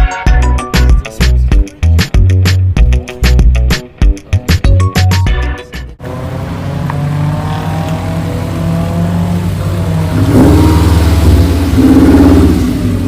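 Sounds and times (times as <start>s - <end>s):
car engine revving: 6.0s - 13.0s.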